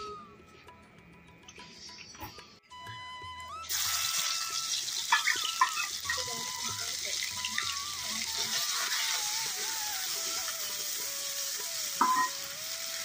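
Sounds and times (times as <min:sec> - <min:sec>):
spices sizzling in hot oil: 0:03.7 - 0:13.0
ladle clinking against pan: 0:12.0 - 0:12.3.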